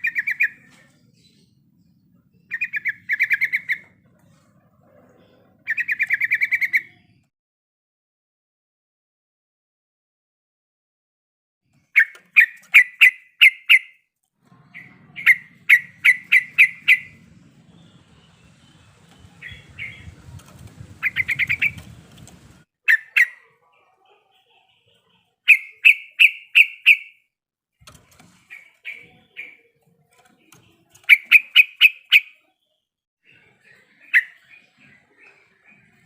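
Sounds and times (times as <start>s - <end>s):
bird singing sharp chirping phrases: 2.3s - 4.0s, 14.6s - 23.6s, 25.5s - 27.2s, 27.8s - 32.6s.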